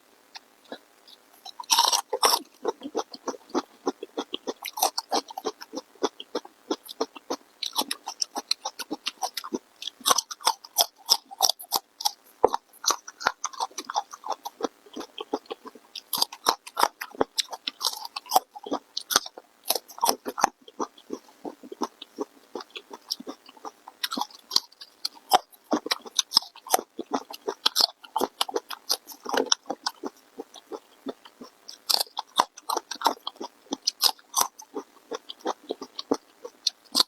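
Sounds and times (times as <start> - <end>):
person chewing food: 0.3 - 37.0.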